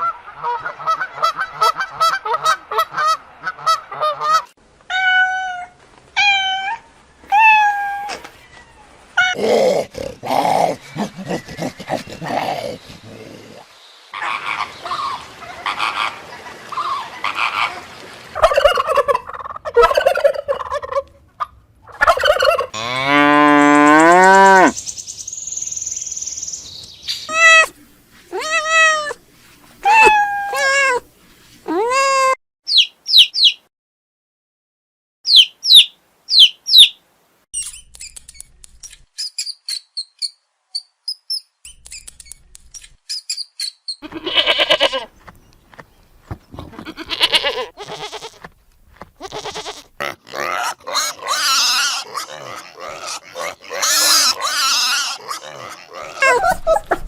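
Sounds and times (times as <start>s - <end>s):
long low animal call: 8.7s - 16.1s, 49.3s - 57.0s
rough rapid animal calling: 43.9s - 57.0s.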